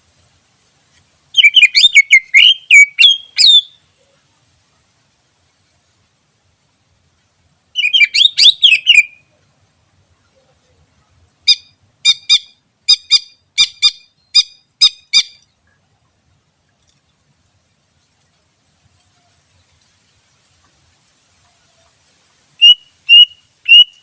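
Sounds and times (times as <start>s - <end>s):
bird singing: 1.4s - 3.8s, 7.8s - 9.3s, 22.6s - 24.0s.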